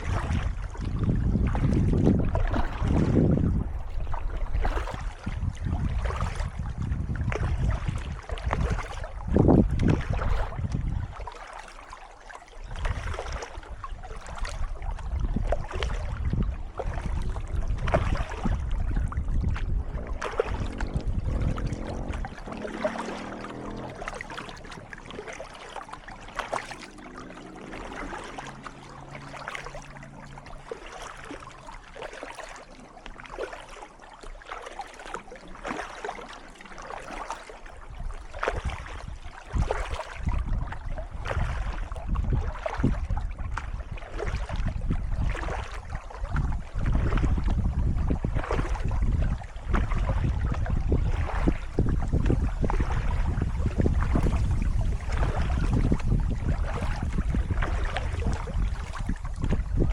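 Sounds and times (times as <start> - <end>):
paddle splashing in water: 0.0 - 59.9
water trickling along hull: 0.0 - 59.9
wind rumble on microphone: 0.0 - 59.9.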